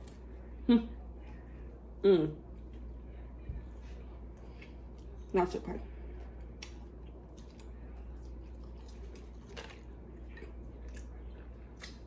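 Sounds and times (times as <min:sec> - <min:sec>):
soft chewing: 0:00.0 - 0:12.0
steady low hum: 0:00.0 - 0:12.0.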